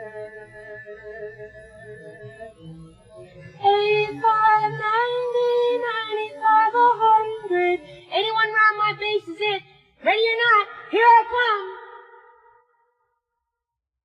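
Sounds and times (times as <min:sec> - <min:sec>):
woman singing: 0:00.0 - 0:01.5, 0:03.6 - 0:12.6.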